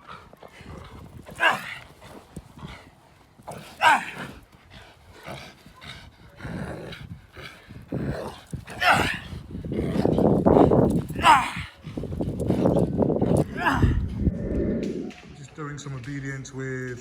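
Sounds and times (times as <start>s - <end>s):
dog barking: 1.4s - 1.7s, 3.8s - 4.2s.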